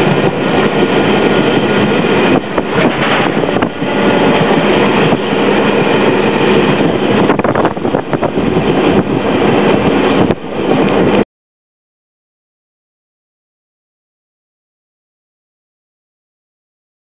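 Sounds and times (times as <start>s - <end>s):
train rattling rumble: 0.0s - 11.2s
wheels clicking over rails: 0.0s - 11.2s.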